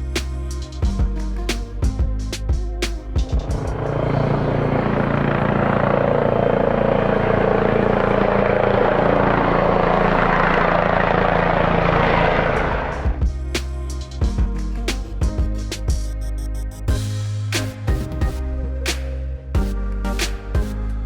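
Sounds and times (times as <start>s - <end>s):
aircraft engine roaring: 3.4s - 13.3s.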